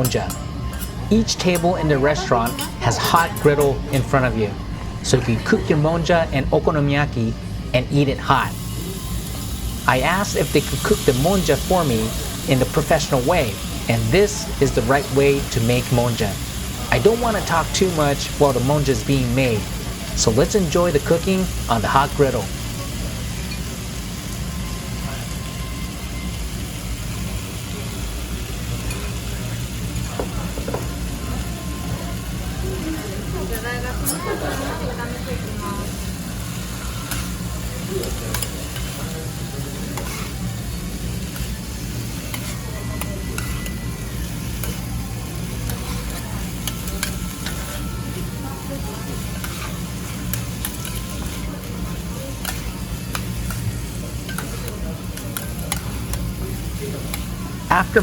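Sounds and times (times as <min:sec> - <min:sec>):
steady low hum: 0:00.0 - 0:23.3
food sizzling on a griddle: 0:08.4 - 0:58.0
spatulas scraping on griddle: 0:36.6 - 0:56.2
metal spatulas scraping: 0:39.9 - 0:40.4.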